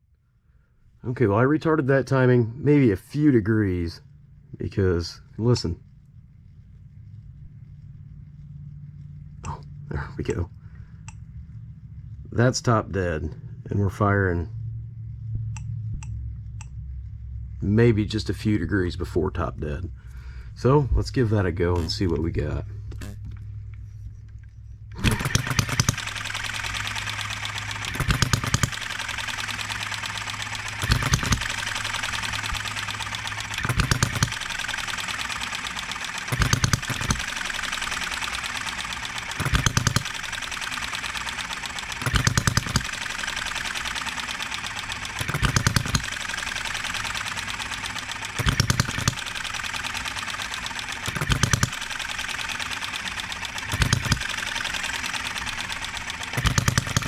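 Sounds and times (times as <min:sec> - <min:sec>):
engine mechanical clatter: 0:01.0 - 0:57.0
model engine firing bursts: 0:24.9 - 0:57.0.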